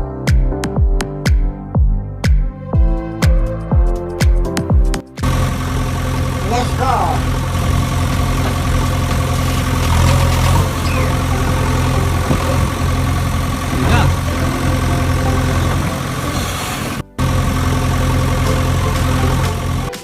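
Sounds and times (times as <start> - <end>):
vehicle motor drone: 5.2 - 20.0.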